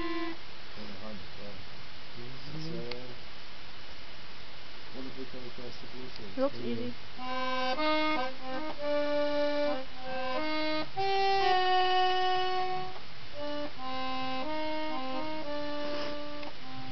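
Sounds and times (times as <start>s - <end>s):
reedy instrumental melody: 0.0s - 0.4s, 6.6s - 16.9s.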